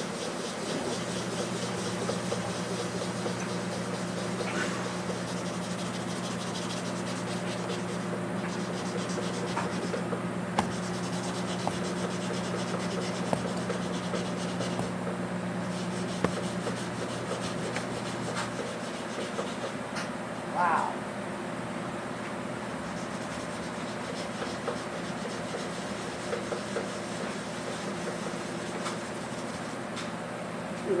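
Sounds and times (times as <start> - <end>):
sandpaper rubbing on metal: 0.0 - 10.0, 10.6 - 15.0, 15.7 - 19.6.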